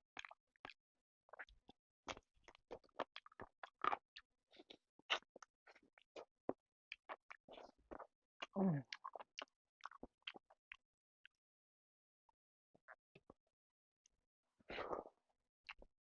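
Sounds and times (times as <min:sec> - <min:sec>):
person chewing and smacking: 0:00.2 - 0:11.4, 0:14.7 - 0:15.9.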